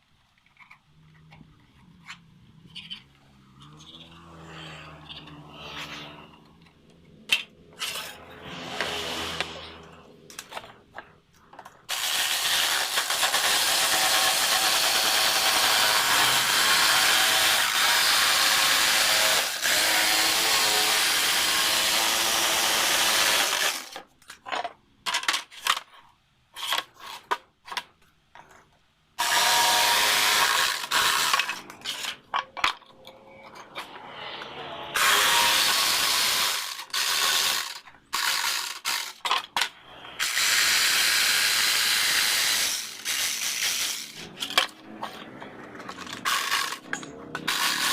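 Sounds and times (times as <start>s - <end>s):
power tool working wood: 7.8s - 10.7s, 11.9s - 24.0s, 29.2s - 32.1s, 34.0s - 39.3s, 39.9s - 47.9s.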